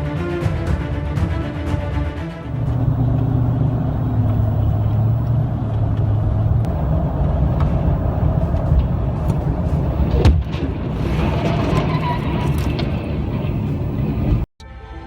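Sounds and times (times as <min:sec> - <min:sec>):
vehicle engine and tyres rumbling: 0:02.3 - 0:14.5
low hum: 0:02.4 - 0:14.5.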